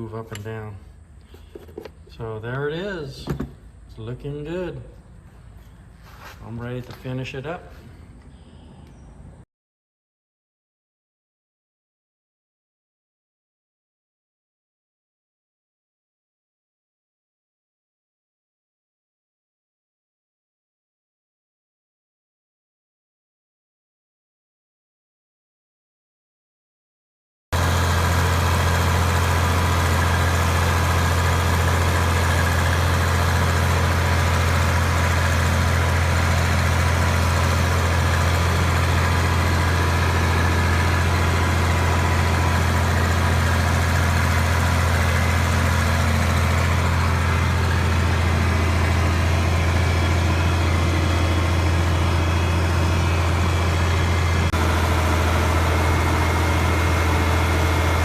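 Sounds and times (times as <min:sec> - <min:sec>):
low engine drone: 0:03.3 - 0:09.4, 0:27.6 - 0:58.0.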